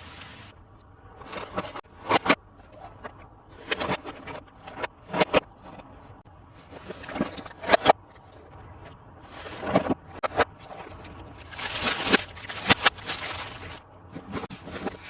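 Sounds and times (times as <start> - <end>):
packaging scraping rustle: 9.2 - 15.0.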